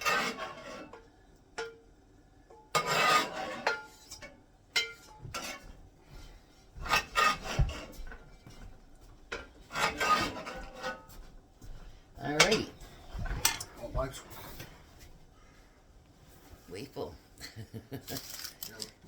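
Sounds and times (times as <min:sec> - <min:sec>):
utensil scraping a pan: 0:00.0 - 0:01.1, 0:02.7 - 0:08.7, 0:09.3 - 0:11.3, 0:12.2 - 0:15.0.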